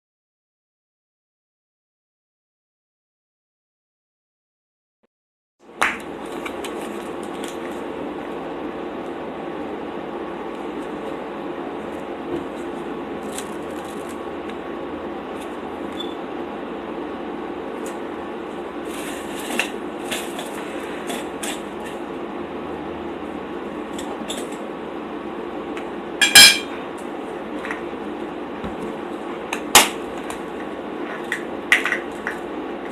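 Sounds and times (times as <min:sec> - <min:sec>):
steady low hum: 0:05.6 - 0:32.9
cutlery clinking against plate: 0:26.2 - 0:26.7.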